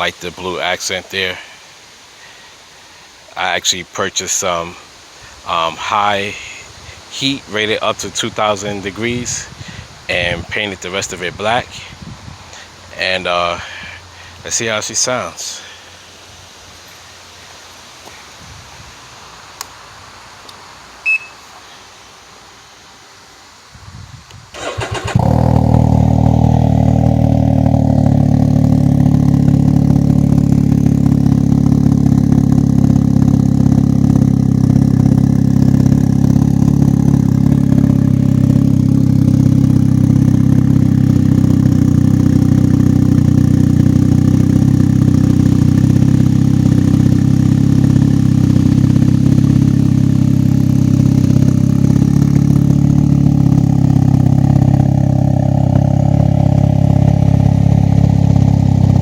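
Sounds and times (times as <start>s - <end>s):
loud deep engine idling: 24.6s - 59.0s.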